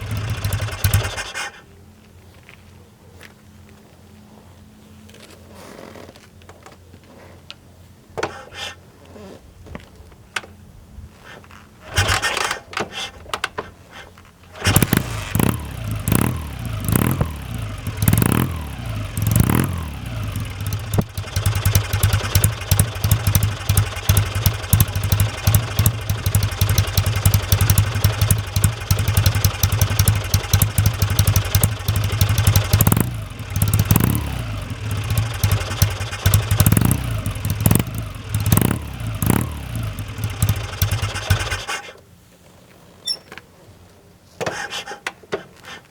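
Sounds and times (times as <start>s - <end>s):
motorcycle engine revving and idling: 0.0s - 1.6s, 14.6s - 41.9s
engine clattering knocks: 14.6s - 41.7s.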